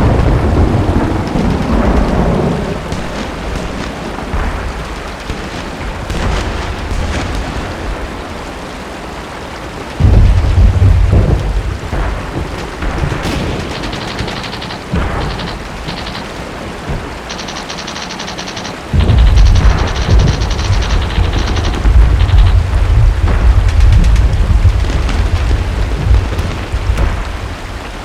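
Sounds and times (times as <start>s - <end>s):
deep rolling booms of thunder: 0.0s - 8.6s, 9.8s - 17.7s, 18.9s - 28.0s
steady rain: 0.0s - 28.0s
machine-gun fire: 2.9s - 7.8s, 12.3s - 25.7s.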